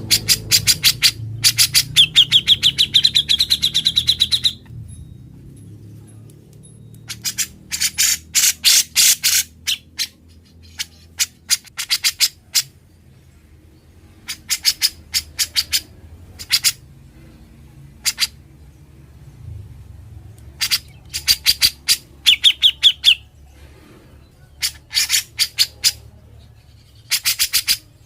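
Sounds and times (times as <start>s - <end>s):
bird harsh scratchy calls: 0.0s - 4.7s, 7.1s - 12.8s, 14.2s - 17.0s, 17.9s - 18.4s, 20.5s - 28.0s.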